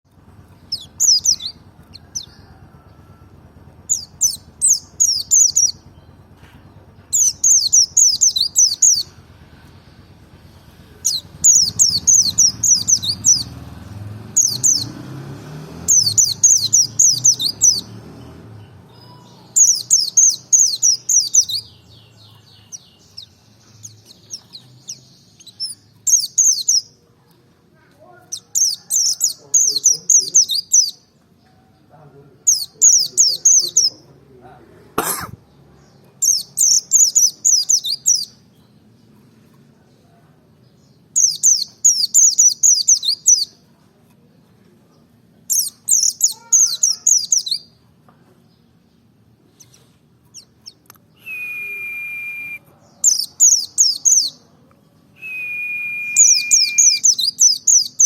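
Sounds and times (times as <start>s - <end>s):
bird twittering song: 0.1s - 9.8s, 11.0s - 27.0s, 28.0s - 31.2s, 32.4s - 34.2s, 35.8s - 39.2s, 40.6s - 43.6s, 45.5s - 47.8s, 48.5s - 54.5s, 55.4s - 58.0s.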